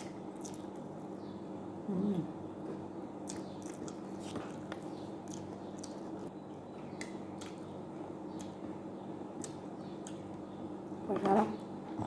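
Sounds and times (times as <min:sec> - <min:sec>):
person chewing food: 0:00.0 - 0:01.0, 0:02.6 - 0:06.3, 0:06.9 - 0:10.4
steady low hum: 0:00.0 - 0:12.0.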